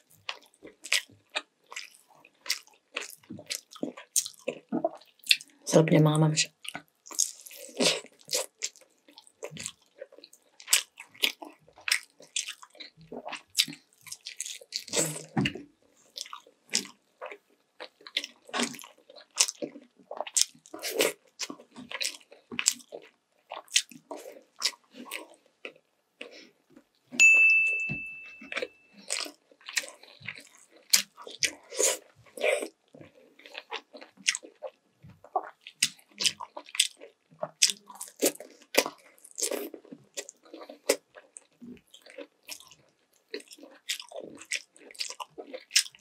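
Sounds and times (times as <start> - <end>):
person chewing with wet smacking: 0.0 - 5.6, 6.5 - 27.0, 28.4 - 46.0
loud ringing ding: 27.2 - 28.9.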